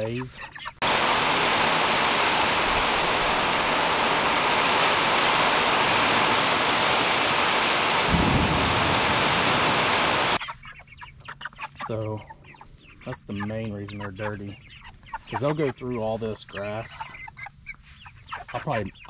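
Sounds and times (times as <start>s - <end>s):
heavy rain hissing: 0.8s - 10.4s
low thump: 8.1s - 10.0s.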